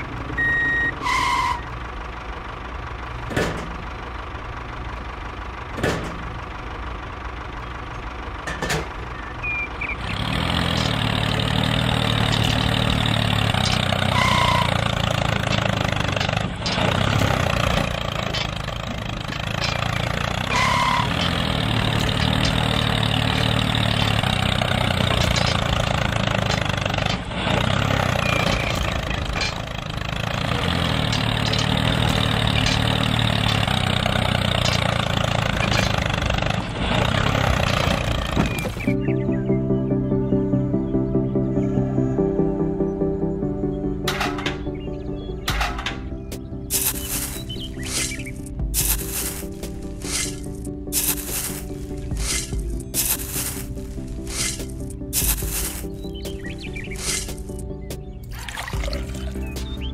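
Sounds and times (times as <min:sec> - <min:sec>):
short beeps: 0:00.4 - 0:01.5.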